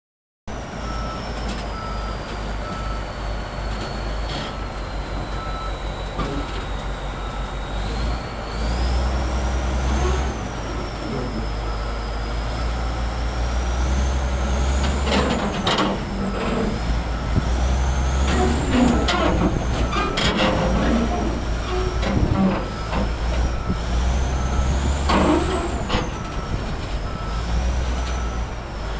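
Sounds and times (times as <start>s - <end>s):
bulldozer diesel engine: 0.5s - 28.9s.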